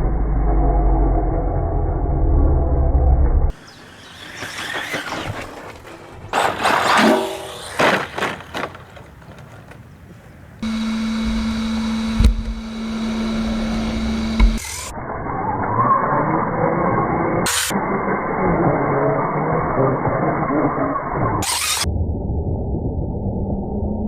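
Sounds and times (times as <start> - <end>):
model truck motor and wheels: 3.5 - 17.7, 21.4 - 21.9
steady hum: 5.4 - 14.9.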